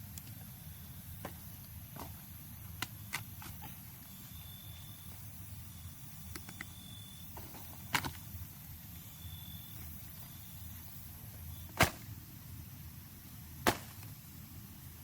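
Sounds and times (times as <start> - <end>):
outdoor background noise: 0.0 - 15.0
sharp whacks: 11.8 - 12.1, 13.6 - 14.0.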